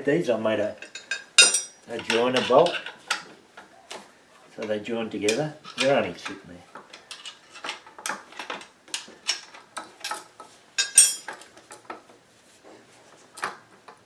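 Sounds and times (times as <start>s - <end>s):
metal exhaust pipes clinking: 0.8s - 3.3s, 4.6s - 11.5s.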